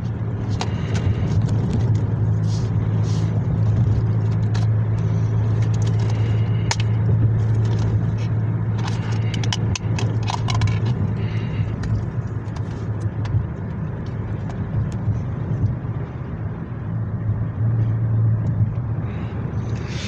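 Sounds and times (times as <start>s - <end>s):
car engine hum inside cabin: 0.0s - 20.0s
plastic clicks of disc case: 3.9s - 8.0s, 8.7s - 11.0s.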